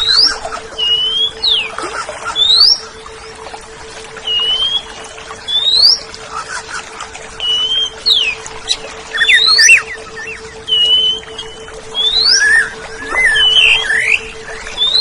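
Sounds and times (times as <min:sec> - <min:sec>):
steady low hum: 0:00.0 - 0:15.0
bird singing clear whistles: 0:05.5 - 0:06.0, 0:09.1 - 0:15.0.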